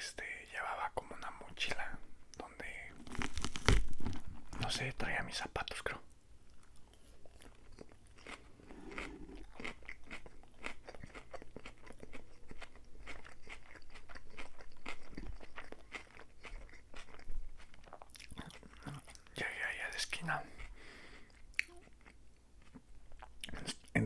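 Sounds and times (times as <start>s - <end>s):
lettuce crunching while chewing: 2.9s - 4.7s, 6.5s - 19.3s.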